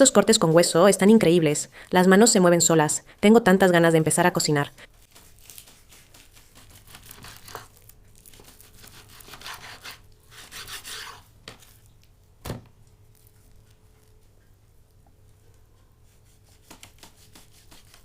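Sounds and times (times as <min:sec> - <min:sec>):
knife cutting raw meat: 0:05.2 - 0:11.3, 0:16.0 - 0:18.0.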